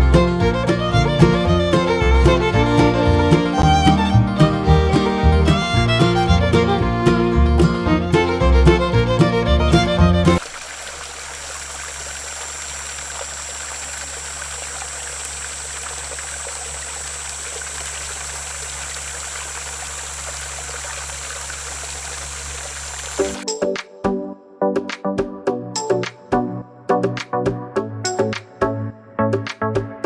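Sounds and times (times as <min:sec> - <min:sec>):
music: 0:00.0 - 0:10.4, 0:23.2 - 0:30.0
low motor hum: 0:00.0 - 0:23.4
water pouring from pump: 0:10.2 - 0:23.4.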